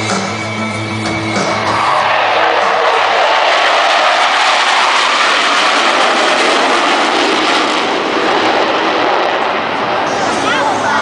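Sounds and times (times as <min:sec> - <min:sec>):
jet aircraft roaring past: 0:00.3 - 0:11.0.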